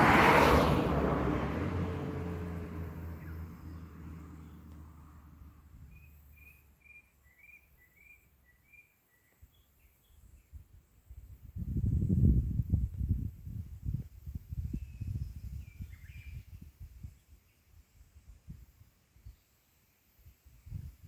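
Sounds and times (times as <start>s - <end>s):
vehicle engine hum: 0.0s - 6.9s
bird chirping: 5.9s - 10.6s.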